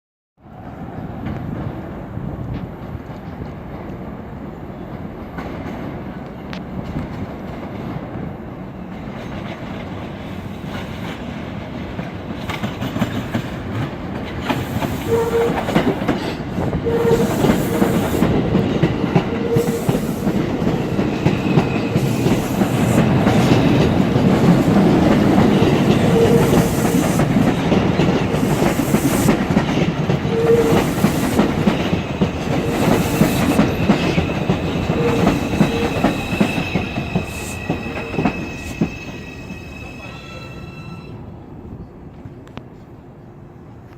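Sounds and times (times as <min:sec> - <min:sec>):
train wheels clattering over rails: 0:08.9 - 0:39.3
train propulsion whine: 0:14.4 - 0:41.4.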